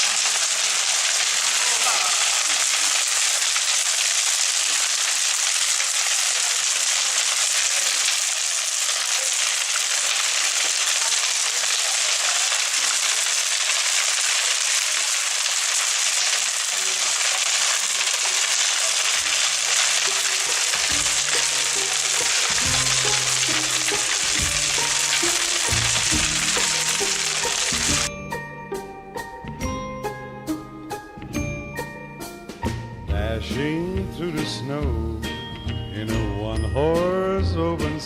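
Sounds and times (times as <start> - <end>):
bonfire crackling and hissing: 0.0 - 28.1.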